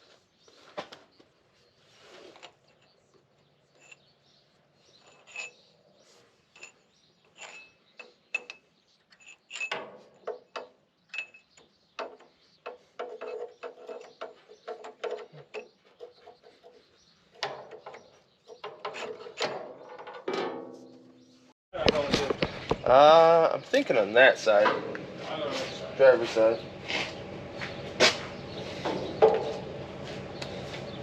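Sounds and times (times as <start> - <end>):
metal clinks and knocks: 5.0 - 5.7, 6.6 - 16.8.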